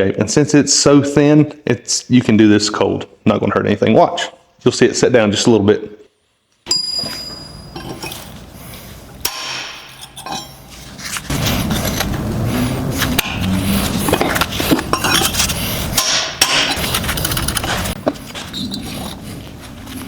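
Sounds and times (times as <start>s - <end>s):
hammer striking steel: 6.7s - 8.3s, 9.2s - 10.7s, 14.9s - 16.8s.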